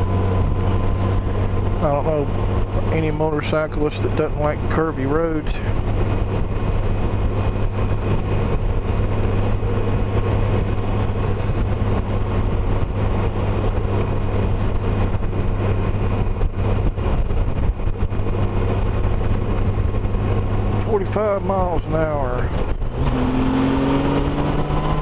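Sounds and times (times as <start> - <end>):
motorcycle engine humming: 0.0 - 25.0
wind noise on microphone: 5.4 - 25.0.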